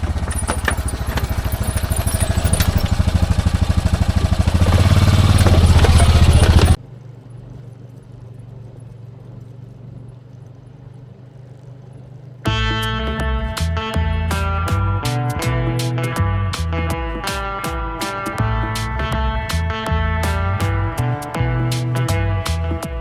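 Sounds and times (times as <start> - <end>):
knocks and rattles: 0.0 - 6.8, 12.5 - 23.0
utility vehicle engine running: 0.0 - 23.0.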